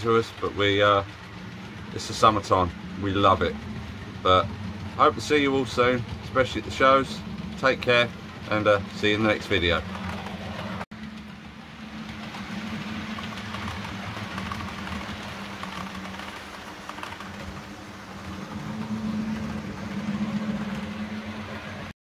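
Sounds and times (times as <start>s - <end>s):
model train rolling rattle: 0.0s - 21.9s.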